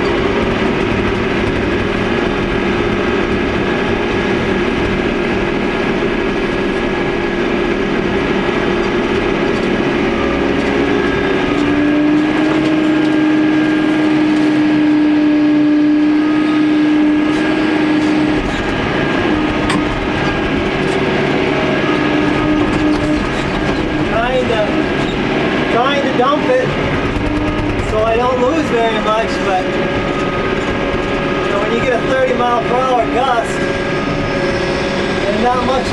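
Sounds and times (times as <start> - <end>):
engine whine: 0.0 - 35.9
machine engine running: 0.0 - 35.9.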